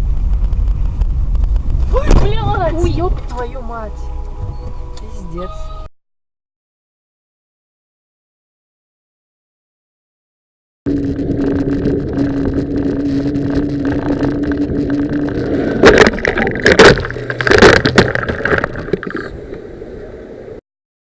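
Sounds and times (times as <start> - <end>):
vehicle driving hum: 0.0 - 5.9, 10.9 - 19.5.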